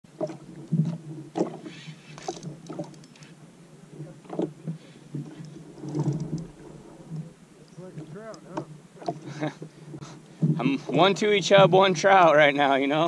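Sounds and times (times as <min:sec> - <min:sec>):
water splashing: 0:00.0 - 0:13.0
knocks against a kayak: 0:10.4 - 0:11.8.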